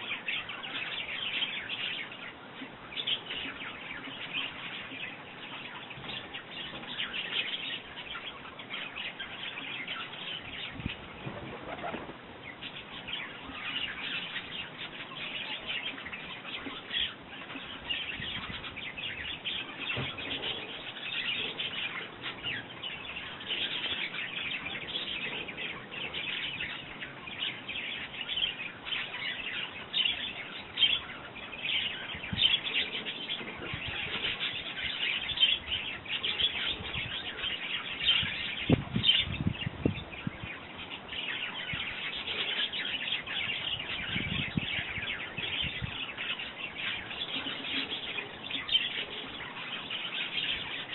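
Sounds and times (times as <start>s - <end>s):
sparrows chirping: 0.0s - 50.9s
wings fluttering: 11.0s - 12.3s.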